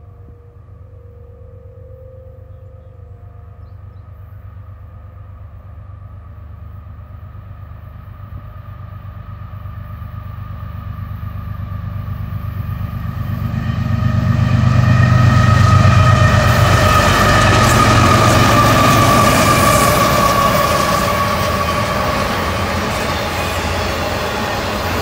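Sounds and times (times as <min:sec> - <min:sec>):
diesel locomotive engine rumble: 0:00.0 - 0:25.0
wheels hissing on rails: 0:15.2 - 0:25.0.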